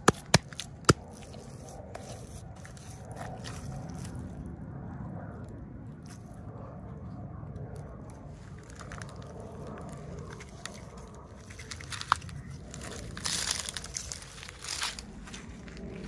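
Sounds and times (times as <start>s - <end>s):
plastic packaging crinkling: 8.5s - 15.2s.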